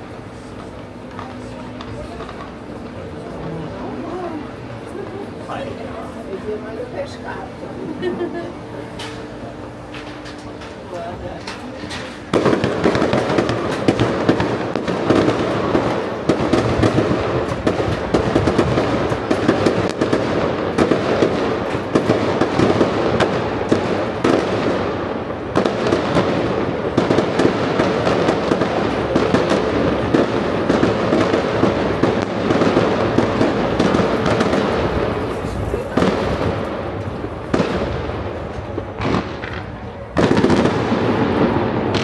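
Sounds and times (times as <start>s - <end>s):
fireworks crackling and popping: 0.0s - 42.0s
sharp firework bangs: 12.0s - 42.0s.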